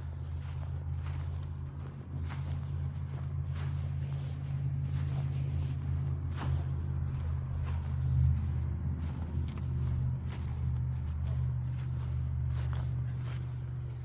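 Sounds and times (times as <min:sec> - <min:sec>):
footsteps on walking path: 0:00.0 - 0:14.0
low rumble: 0:00.0 - 0:14.0.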